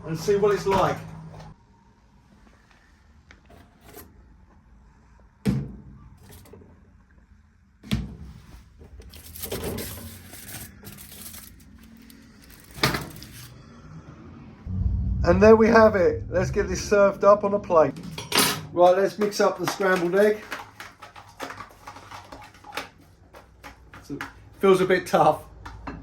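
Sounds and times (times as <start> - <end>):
wrapping crinkling and tearing: 9.1 - 13.5.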